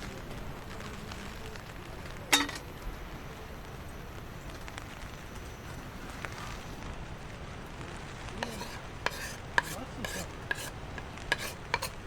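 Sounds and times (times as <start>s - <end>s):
short scrapes: 8.4s - 12.0s.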